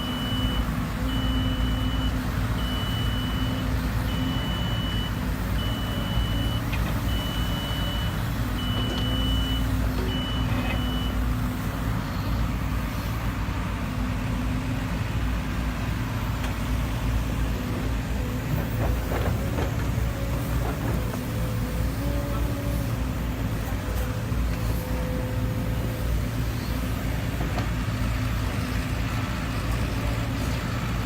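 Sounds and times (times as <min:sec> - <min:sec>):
heavy diesel machinery running: 0:00.0 - 0:31.0.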